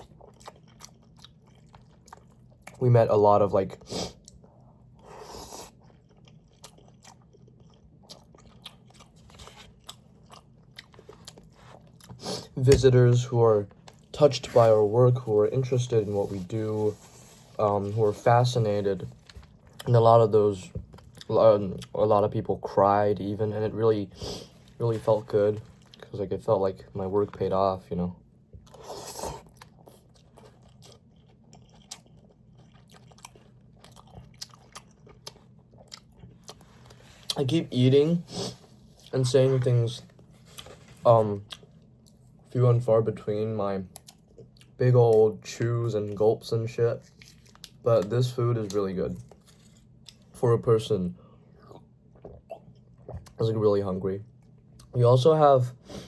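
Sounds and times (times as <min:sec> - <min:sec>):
person chewing food: 0:00.0 - 0:02.8, 0:03.7 - 0:12.6, 0:13.7 - 0:14.7, 0:19.0 - 0:20.1, 0:20.7 - 0:22.0, 0:25.6 - 0:26.1, 0:28.5 - 0:37.4, 0:40.0 - 0:42.5, 0:43.9 - 0:44.8, 0:47.0 - 0:48.1, 0:48.7 - 0:50.4, 0:51.2 - 0:53.4.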